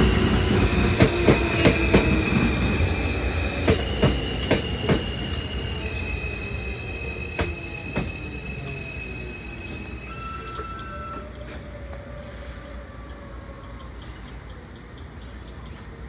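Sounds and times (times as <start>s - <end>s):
wheels clicking over rail joints: 0.0s - 5.2s
train wheel squeal: 0.0s - 14.3s.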